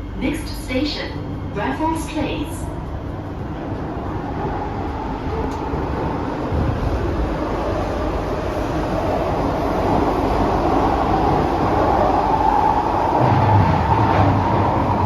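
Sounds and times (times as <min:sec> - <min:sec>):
train wheels rumbling in tunnel: 0:00.0 - 0:15.0
faint click: 0:05.5 - 0:05.7.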